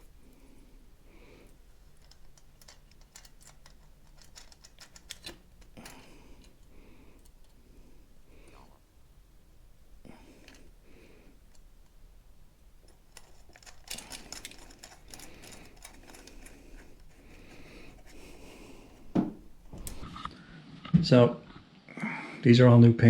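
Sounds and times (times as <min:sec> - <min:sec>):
small parts and tools rattling: 0:01.4 - 0:07.6, 0:10.2 - 0:10.8, 0:12.8 - 0:20.0.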